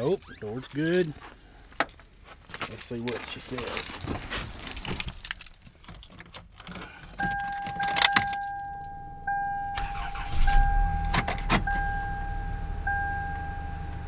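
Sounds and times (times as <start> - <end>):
keys rattling: 0.0 - 9.0
car engine starting and idling: 7.2 - 14.0
dashboard warning chime: 7.2 - 14.0.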